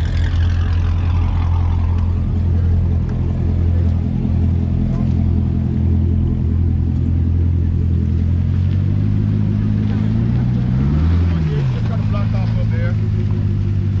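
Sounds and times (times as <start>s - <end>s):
car engine droning: 0.0s - 14.0s.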